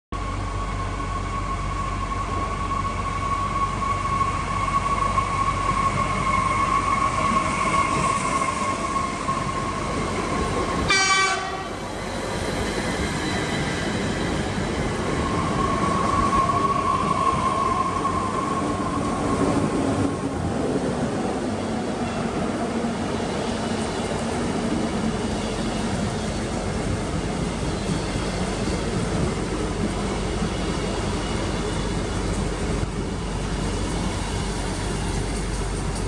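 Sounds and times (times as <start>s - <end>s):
train running gear rumble: 0.2s - 36.0s
high wheel squeal: 0.3s - 19.4s, 27.4s - 28.9s.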